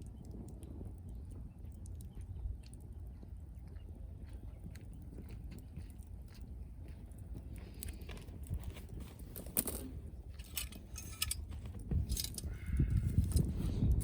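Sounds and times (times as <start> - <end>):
low fire rumble: 0.0 - 14.0
wood fire crackling and popping: 0.0 - 14.0.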